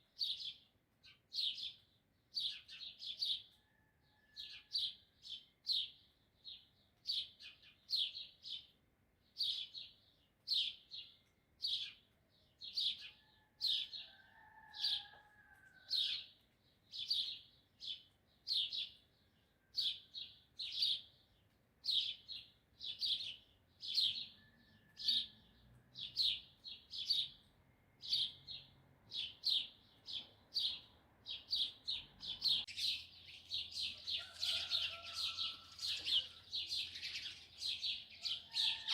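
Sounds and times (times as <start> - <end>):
distant rooster crowing: 3.6 - 4.8, 13.1 - 16.2, 24.2 - 25.7, 33.8 - 36.7, 38.2 - 38.9
small bird chirping: 19.8 - 38.9.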